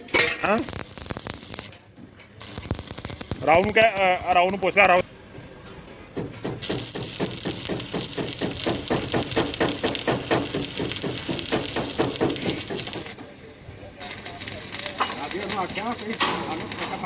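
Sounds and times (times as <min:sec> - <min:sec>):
hammering on metal: 0:06.1 - 0:13.1.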